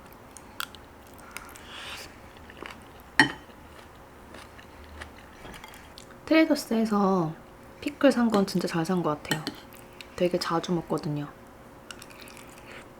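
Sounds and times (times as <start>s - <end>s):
chewing and crunching: 0.1s - 6.2s, 11.8s - 12.9s.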